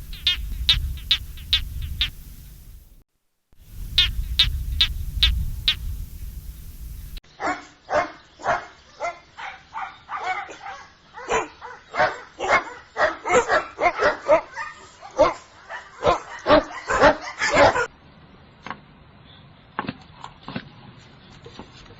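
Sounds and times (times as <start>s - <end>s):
low rumble: 0.0s - 3.0s, 3.7s - 7.2s
short high chirps: 0.0s - 3.0s, 3.8s - 7.2s
dog barking: 7.4s - 17.9s.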